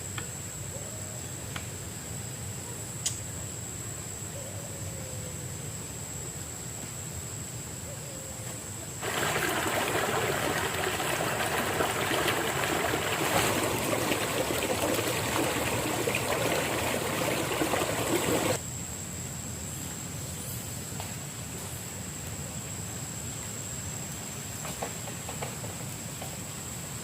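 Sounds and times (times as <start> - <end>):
running water splashing: 9.0 - 18.6.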